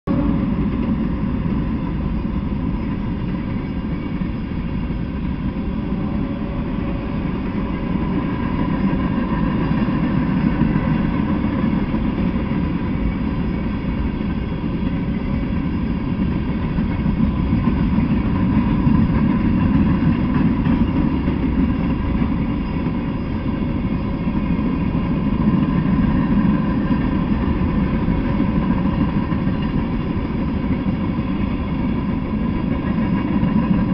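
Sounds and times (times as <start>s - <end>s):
freight train rumbling: 0.0s - 33.9s.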